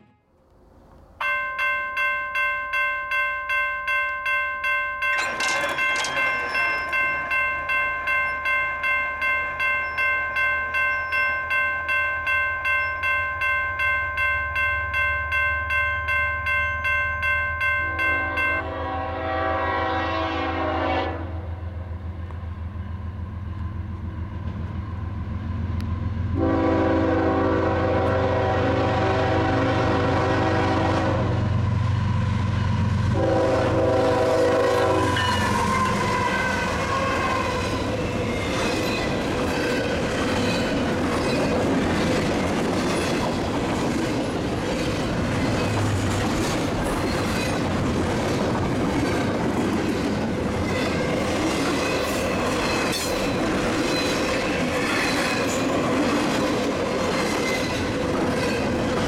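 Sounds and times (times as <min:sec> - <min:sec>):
locomotive air horn: 0:00.0 - 0:00.3, 0:18.0 - 0:21.6, 0:26.4 - 0:31.5, 0:33.1 - 0:37.6
train wheels clacking on track: 0:05.0 - 0:08.7, 0:34.1 - 0:59.0.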